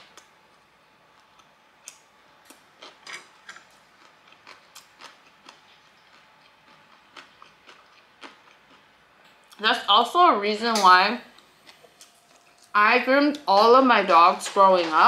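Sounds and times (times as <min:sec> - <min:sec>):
chewing with wet clicks: 0:01.2 - 0:08.8.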